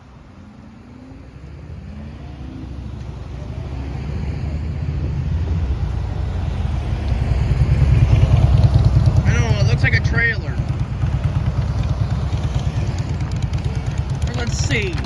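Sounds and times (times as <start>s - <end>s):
diesel freight train rumbling: 0.0s - 15.0s.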